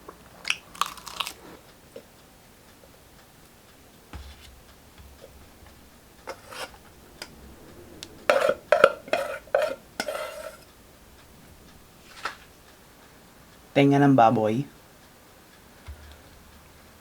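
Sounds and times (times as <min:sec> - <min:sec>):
tableware knocking and scraping: 0:06.3 - 0:06.8, 0:08.3 - 0:10.7
tableware clicking: 0:08.3 - 0:10.7.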